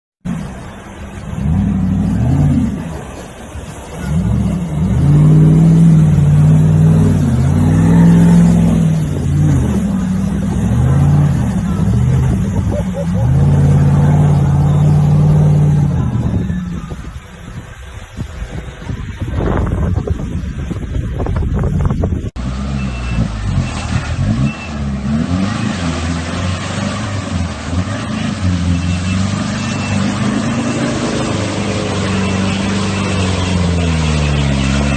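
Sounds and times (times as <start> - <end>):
vehicle engine revving: 0.3 - 17.0, 21.8 - 34.9
wind buffeting microphone: 11.6 - 13.8, 15.8 - 22.4.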